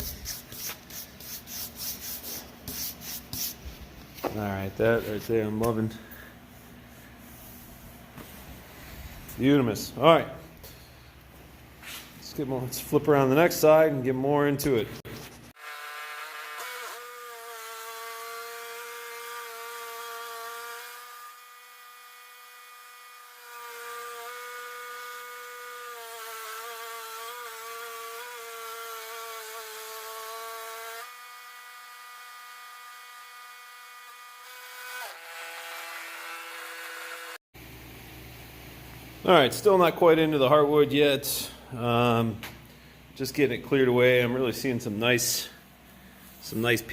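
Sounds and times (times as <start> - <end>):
bandsaw mill whining: 15.6 - 37.4.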